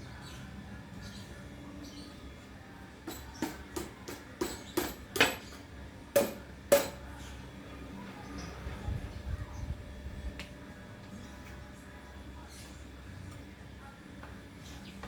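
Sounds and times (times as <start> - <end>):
tools knocking on metal: 3.0 - 7.1.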